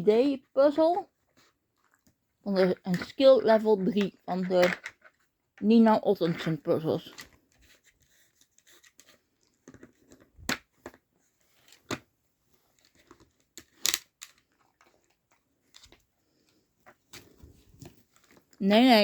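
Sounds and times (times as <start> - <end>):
plastic puzzle clicks and knocks: 2.9 - 5.7, 8.5 - 12.1, 12.7 - 16.0.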